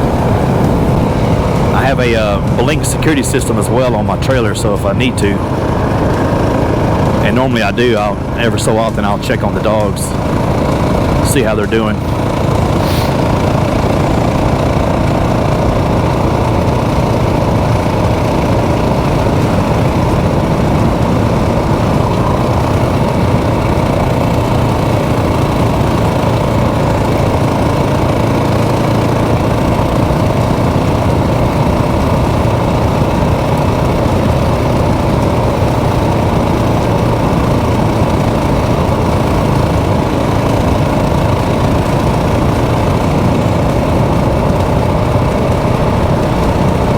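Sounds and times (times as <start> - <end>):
motorcycle engine running: 0.0 - 46.9
rush of noise: 0.0 - 46.9.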